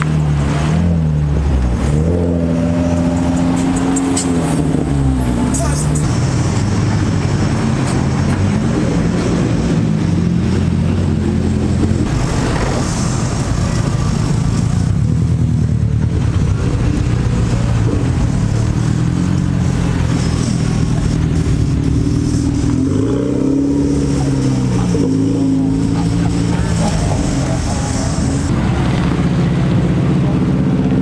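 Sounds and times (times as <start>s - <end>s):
car engines revving: 0.0s - 31.0s.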